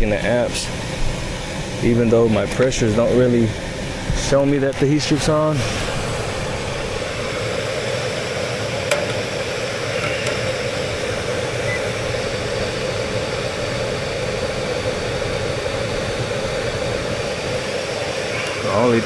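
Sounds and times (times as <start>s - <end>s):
air blower humming: 0.0s - 19.0s.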